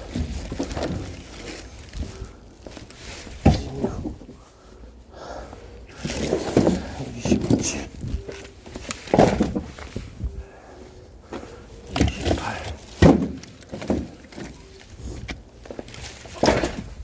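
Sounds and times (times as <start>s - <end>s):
footsteps and shuffling: 0.0s - 17.0s
wooden logs knocking: 3.4s - 4.3s, 5.9s - 9.9s, 11.3s - 14.6s, 15.2s - 17.0s.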